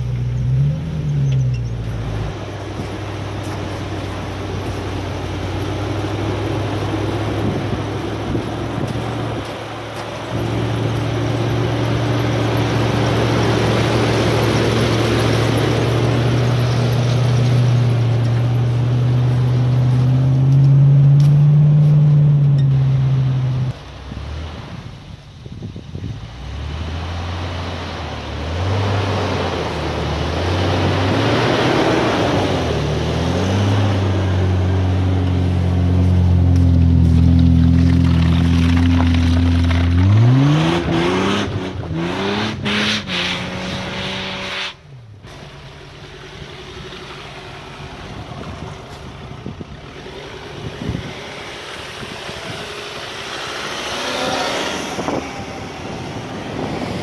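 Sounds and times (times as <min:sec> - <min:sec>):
off-road engine revving: 0:00.0 - 0:25.1, 0:26.1 - 0:57.0
wind noise on microphone: 0:07.2 - 0:09.8, 0:24.5 - 0:27.1, 0:48.0 - 0:52.8, 0:54.6 - 0:57.0.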